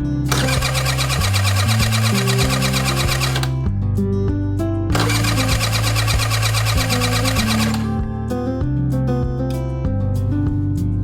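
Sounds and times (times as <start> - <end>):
background music: 0.0 - 11.0
scooter engine ticking rattle: 0.3 - 3.6, 4.9 - 8.0.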